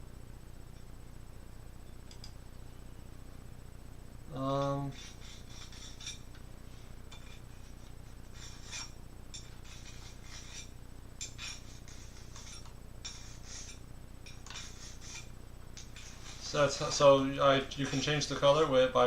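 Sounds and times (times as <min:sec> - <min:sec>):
steady low hum: 0:00.0 - 0:19.0
short scrapes: 0:04.9 - 0:10.7, 0:11.3 - 0:16.7
mouse rubbing and clicking: 0:14.4 - 0:16.5.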